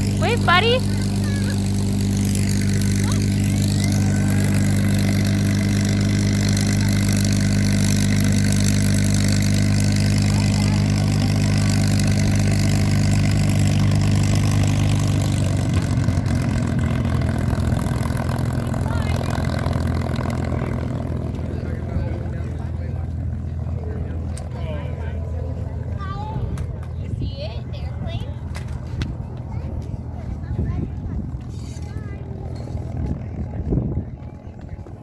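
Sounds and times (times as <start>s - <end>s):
propeller airplane engine running: 0.0s - 35.0s.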